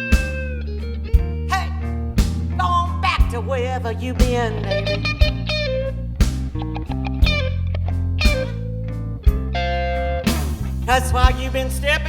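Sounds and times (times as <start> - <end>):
bass and drum beat: 0.0 - 12.0
electric guitar playing: 0.0 - 12.0
person singing: 1.5 - 2.0, 2.6 - 5.5, 10.9 - 12.0.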